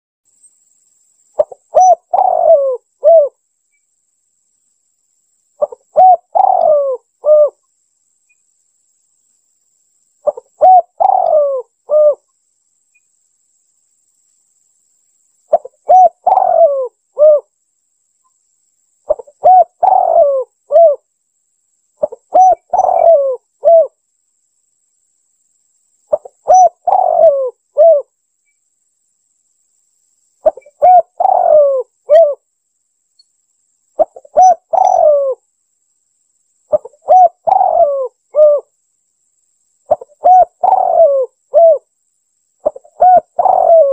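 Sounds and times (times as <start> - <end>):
dove cooing: 1.4 - 3.4, 5.6 - 7.6, 10.2 - 12.2, 15.5 - 17.5, 19.1 - 21.0, 22.0 - 24.0, 26.1 - 28.1, 30.4 - 32.4, 34.0 - 35.4, 36.7 - 38.7, 39.9 - 41.9, 42.6 - 43.9.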